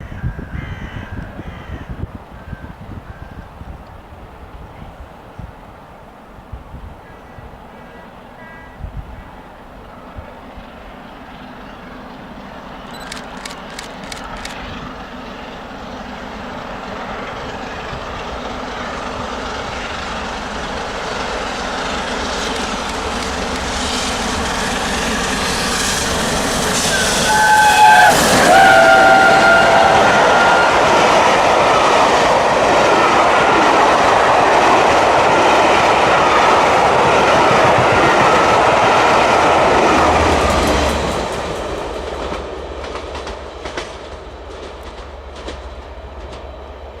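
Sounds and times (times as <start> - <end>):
steam locomotive passing: 0.0 - 47.0
train whistle: 7.1 - 9.4, 25.4 - 32.2.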